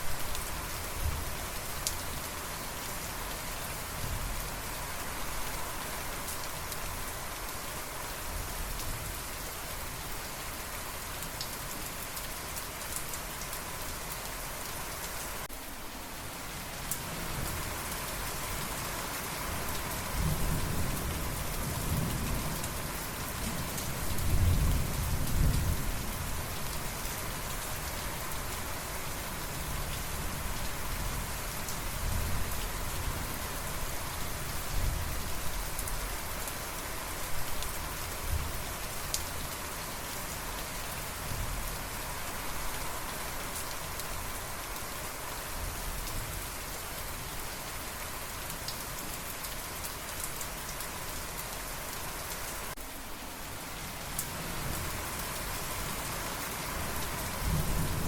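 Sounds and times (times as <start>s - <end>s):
steady rain falling: 0.0s - 58.0s
low rumble of thunder: 23.4s - 26.3s, 57.4s - 58.0s.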